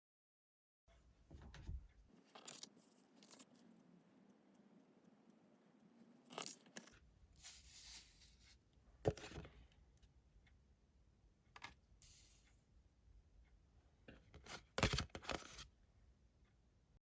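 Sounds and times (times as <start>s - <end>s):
cards rustling and scraping: 2.2s - 3.8s, 6.2s - 9.6s, 14.3s - 15.7s.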